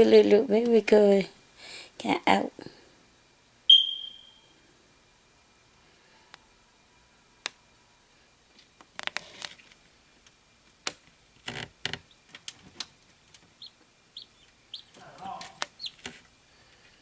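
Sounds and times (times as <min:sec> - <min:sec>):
chick peeping: 0:13.6 - 0:16.1.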